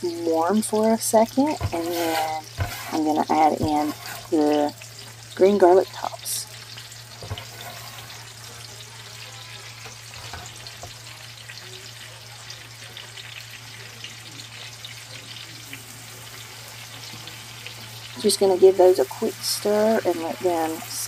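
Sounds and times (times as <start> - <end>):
garlic sizzling in grease: 0.0 - 21.0
wooden spatula stirring: 1.3 - 4.5, 7.2 - 8.3.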